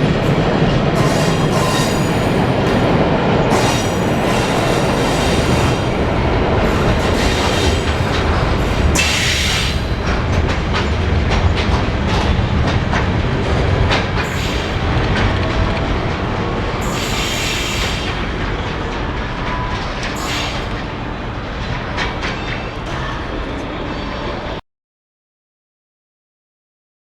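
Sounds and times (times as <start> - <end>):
freight train rumbling past: 0.0 - 24.6
wheels clicking over rail joints: 6.6 - 16.1.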